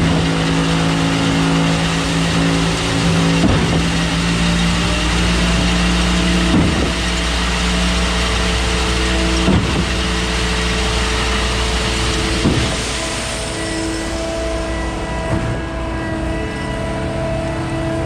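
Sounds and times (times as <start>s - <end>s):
concrete pump truck engine: 0.0s - 18.0s.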